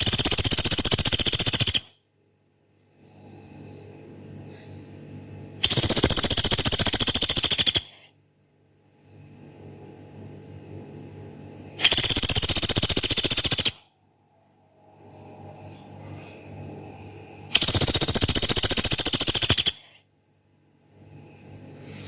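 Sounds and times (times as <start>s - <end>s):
woodpecker rattling call: 0.0s - 1.9s, 5.6s - 8.0s, 11.8s - 13.8s, 17.5s - 20.0s
faint low hum: 0.0s - 22.0s.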